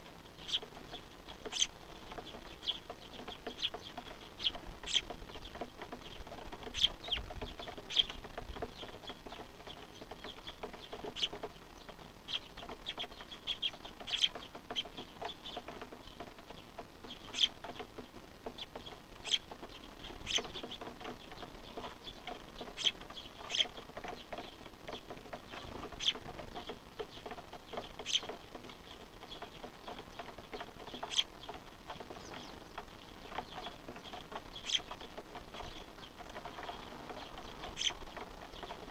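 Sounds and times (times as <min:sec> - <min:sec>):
high bird chirps: 0:00.4 - 0:07.2, 0:18.6 - 0:24.6, 0:27.8 - 0:29.5, 0:30.9 - 0:31.6, 0:32.2 - 0:38.8.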